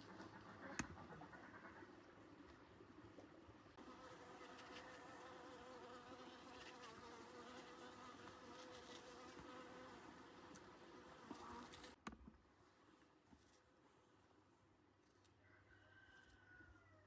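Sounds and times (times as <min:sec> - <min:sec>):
faint insect buzzing: 0:03.8 - 0:12.0.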